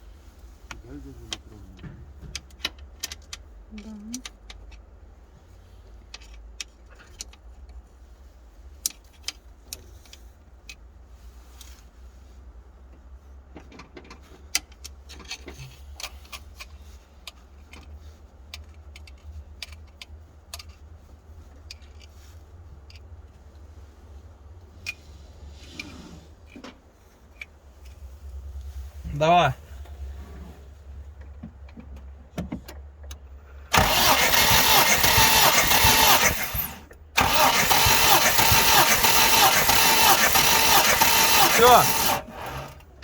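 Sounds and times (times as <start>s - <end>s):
low steady rumble: 15.7s - 43.0s
hand tools clicking and clinking: 33.7s - 43.0s.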